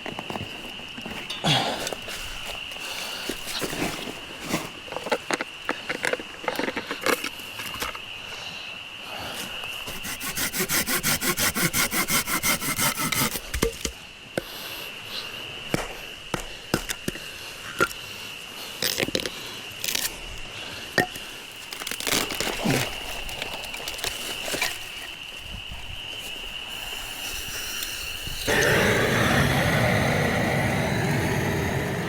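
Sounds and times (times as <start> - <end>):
fast rasping strokes: 9.9 - 13.4
steady high-pitched hum: 26.8 - 32.0.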